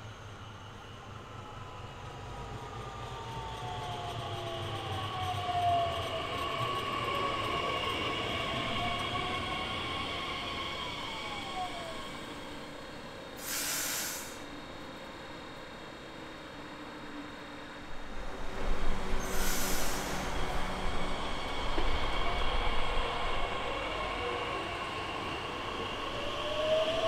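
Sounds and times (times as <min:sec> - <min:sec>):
train wheels squealing: 0:00.0 - 0:14.5, 0:18.9 - 0:27.0
short hiss: 0:13.4 - 0:14.5, 0:19.3 - 0:20.2.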